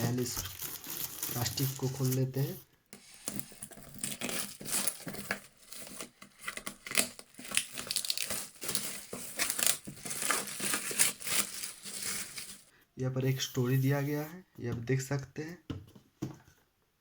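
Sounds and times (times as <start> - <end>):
plastic wrap crinkling: 0.0 - 12.7.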